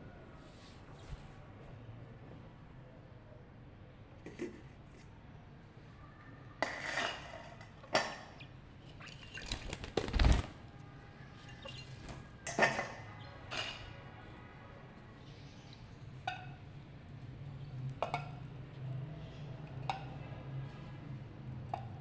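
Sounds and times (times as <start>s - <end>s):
clinks and knocks on pottery: 6.6s - 8.6s, 11.5s - 14.0s, 18.0s - 18.5s.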